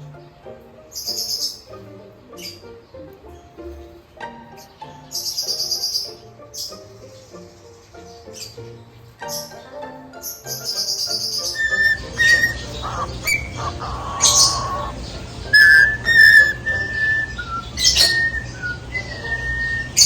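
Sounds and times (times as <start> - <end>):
cockatiels chirping and calling: 10.6 - 20.0
cockatiels whistling: 10.8 - 20.0
steady low hum: 11.9 - 20.0.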